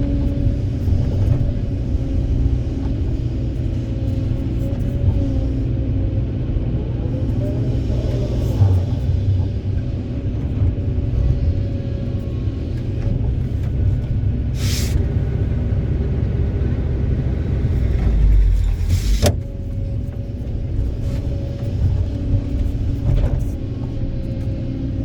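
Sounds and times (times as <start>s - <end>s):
excavator diesel engine rumbling: 0.0s - 25.0s
short hiss: 14.6s - 15.0s.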